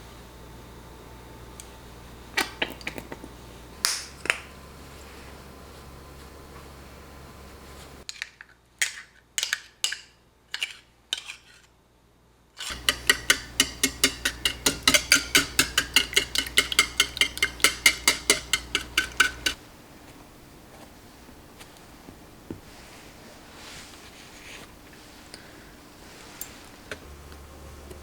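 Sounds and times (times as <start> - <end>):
kitchenware clinks and scrapes: 12.6 - 19.6
whisking in a bowl: 12.6 - 19.6.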